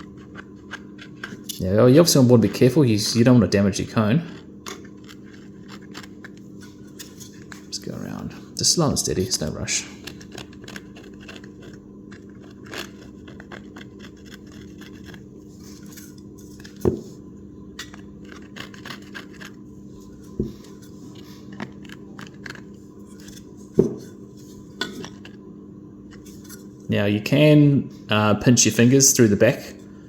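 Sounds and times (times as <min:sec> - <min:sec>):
blade scraping plastic cone: 0:00.0 - 0:08.1, 0:09.1 - 0:17.2, 0:17.8 - 0:25.3
steady low hum: 0:00.0 - 0:30.0.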